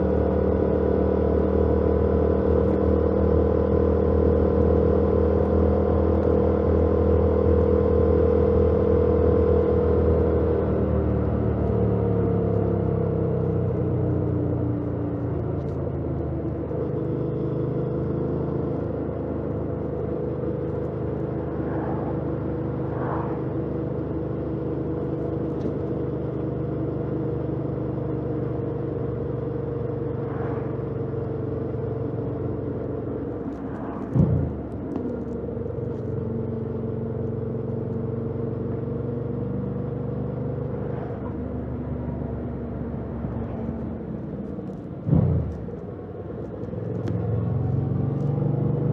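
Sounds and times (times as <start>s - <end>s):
road noise: 0.0s - 48.9s
loud thump: 34.1s - 34.8s, 45.0s - 45.8s.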